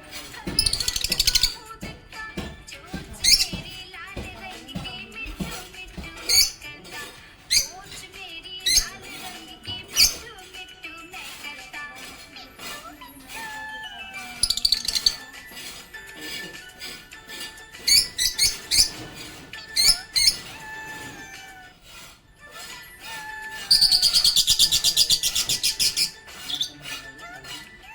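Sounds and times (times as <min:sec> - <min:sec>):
background music: 0:00.0 - 0:27.9
budgerigars chirping: 0:00.6 - 0:01.6, 0:03.2 - 0:03.6, 0:06.2 - 0:06.6, 0:07.5 - 0:08.0, 0:08.6 - 0:10.2, 0:14.4 - 0:15.3, 0:17.3 - 0:21.4, 0:23.7 - 0:27.0
rapid chattering trill: 0:14.4 - 0:15.3.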